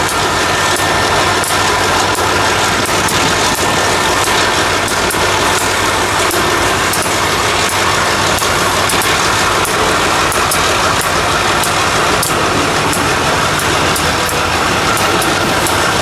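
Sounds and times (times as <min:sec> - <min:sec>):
freight train rumbling: 0:00.0 - 0:16.0.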